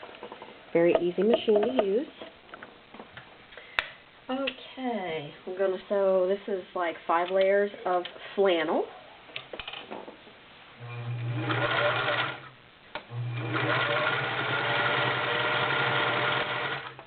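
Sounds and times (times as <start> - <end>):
sewing machine stitching: 11.0 - 12.5, 13.2 - 17.0.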